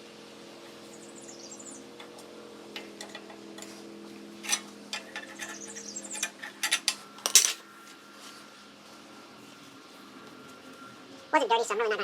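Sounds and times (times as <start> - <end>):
steady low hum: 0.0 - 12.0
clicks and taps of parts: 2.0 - 3.8, 4.4 - 7.6.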